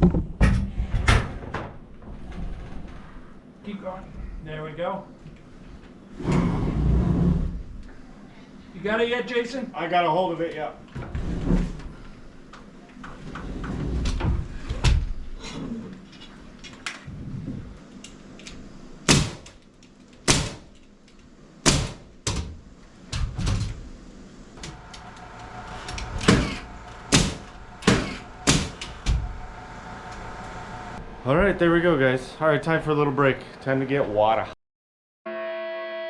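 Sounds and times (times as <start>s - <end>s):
machine hum: 0.0s - 33.5s
knocks on wooden framing: 26.2s - 28.8s.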